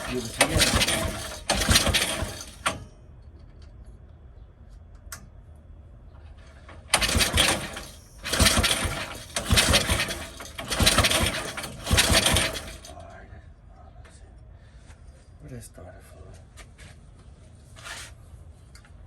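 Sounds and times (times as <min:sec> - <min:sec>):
small engine sputtering: 0:00.0 - 0:02.8, 0:06.9 - 0:12.9.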